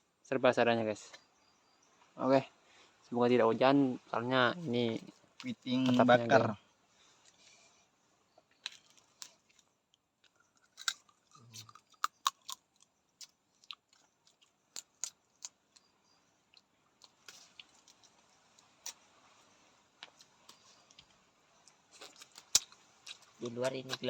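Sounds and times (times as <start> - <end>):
chewing: 8.5 - 15.9, 16.5 - 19.0, 20.0 - 24.0
crab shells cracking: 8.6 - 9.5, 10.4 - 15.9, 22.0 - 24.0.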